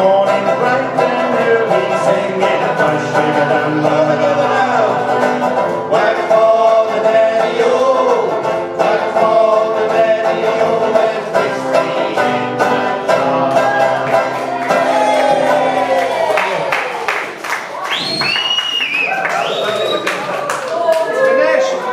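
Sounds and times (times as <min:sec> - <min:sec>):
picked banjo: 0:00.0 - 0:16.3
acoustic guitar: 0:00.0 - 0:20.7.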